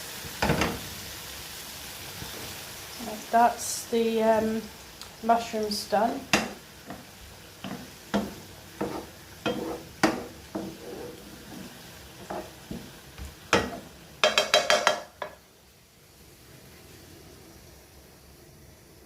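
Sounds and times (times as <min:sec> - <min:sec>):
faint steady hiss: 0:00.0 - 0:19.0
mushrooms sizzling: 0:00.0 - 0:19.0
utensil scraping a frying pan: 0:06.2 - 0:15.4.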